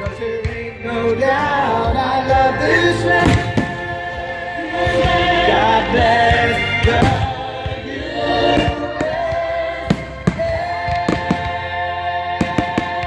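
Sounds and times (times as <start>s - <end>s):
music with choral singing: 0.0s - 13.0s
fireworks bangs: 6.8s - 7.8s, 8.6s - 11.8s, 12.4s - 13.0s.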